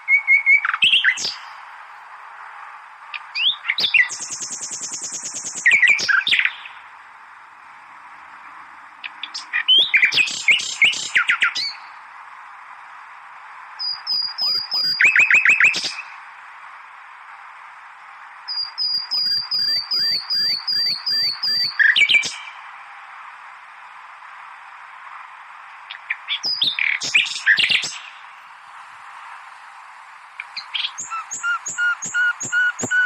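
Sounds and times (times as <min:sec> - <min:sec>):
songbird singing: 0:00.0 - 0:02.1, 0:03.0 - 0:12.1, 0:13.7 - 0:16.2, 0:18.4 - 0:22.8, 0:25.0 - 0:33.0
background hiss: 0:00.0 - 0:33.0.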